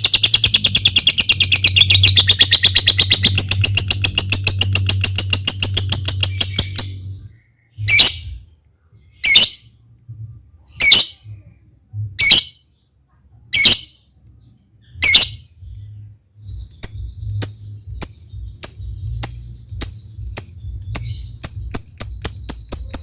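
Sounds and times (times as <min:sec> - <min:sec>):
bird chattering trill: 0:00.0 - 0:08.4, 0:16.5 - 0:23.0
shrill bird chirps: 0:00.0 - 0:09.8, 0:10.7 - 0:11.5, 0:12.2 - 0:23.0.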